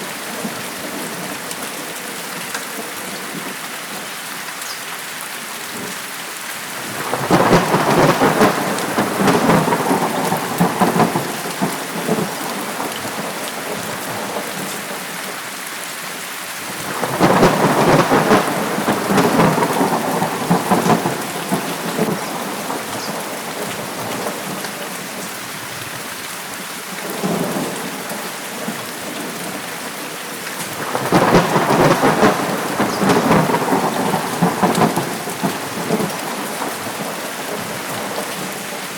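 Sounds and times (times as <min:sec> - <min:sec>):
heavy rain hissing: 0:00.0 - 0:38.9
rolling thunder: 0:06.8 - 0:14.6, 0:16.8 - 0:24.6, 0:30.7 - 0:38.5.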